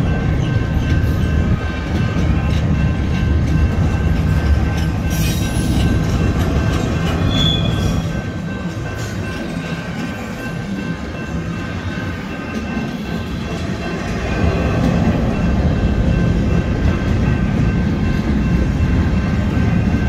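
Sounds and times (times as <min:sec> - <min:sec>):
freight train wheels rumbling: 0:00.0 - 0:20.0
high wheel squeal: 0:07.1 - 0:08.2.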